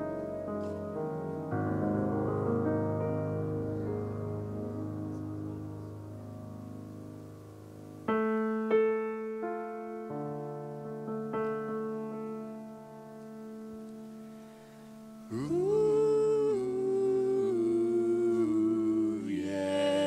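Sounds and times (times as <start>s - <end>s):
slow piano ballad: 0.0s - 20.0s
person singing: 15.2s - 20.0s.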